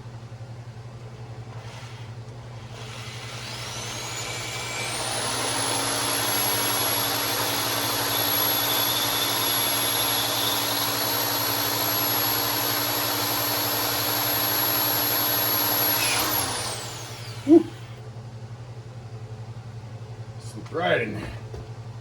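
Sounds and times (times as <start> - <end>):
electric drill whining: 1.5 - 18.0.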